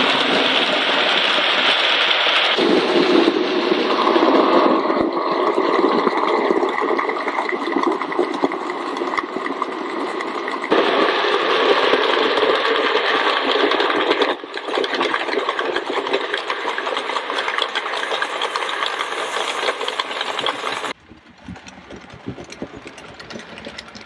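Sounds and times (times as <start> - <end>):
model train whirring: 16.2 - 24.0
wheels rattling on rail: 16.5 - 24.0.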